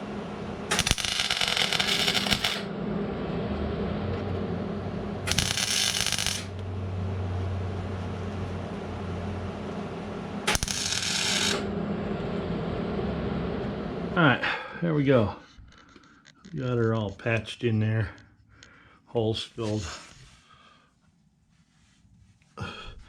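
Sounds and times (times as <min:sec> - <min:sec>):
steady low hum: 0:00.0 - 0:23.0
welder bursts on sheet metal: 0:00.7 - 0:02.7, 0:05.2 - 0:06.5, 0:10.5 - 0:11.6.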